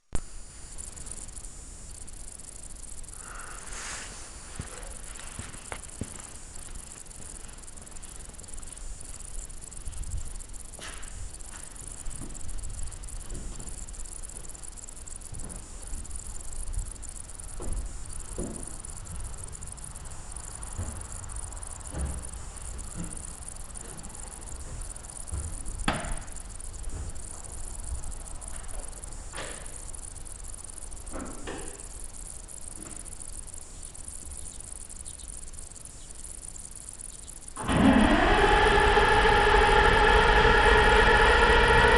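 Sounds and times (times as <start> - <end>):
insect chirring: 0.0 - 41.9.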